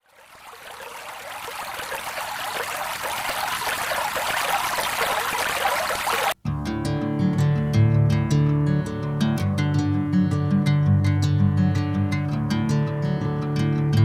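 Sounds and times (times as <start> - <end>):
running water: 0.0 - 6.4
acoustic guitar music: 6.4 - 14.0.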